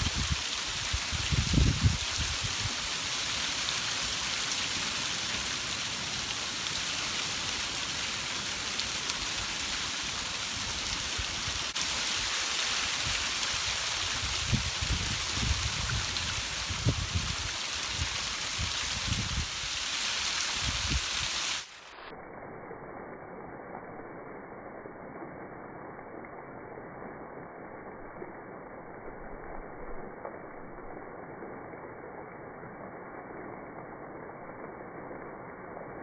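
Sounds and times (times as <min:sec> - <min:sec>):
wind buffeting microphone: 0:00.0 - 0:02.7, 0:14.1 - 0:19.5
heavy rain: 0:00.0 - 0:21.8.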